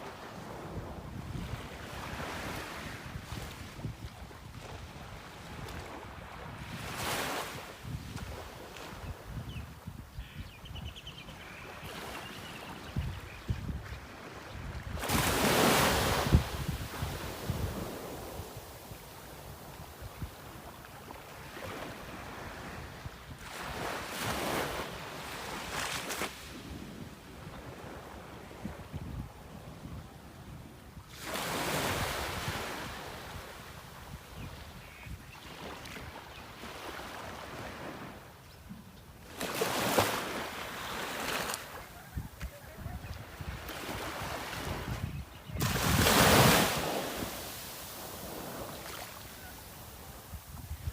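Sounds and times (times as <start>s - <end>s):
wind buffeting microphone: 7.7s - 11.1s, 12.8s - 18.9s, 42.0s - 50.9s
sea waves washing in: 45.6s - 50.9s.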